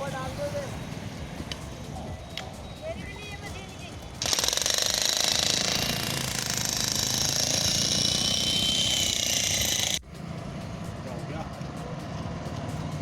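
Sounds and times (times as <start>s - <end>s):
jackhammer breaking road surface: 4.2s - 10.0s.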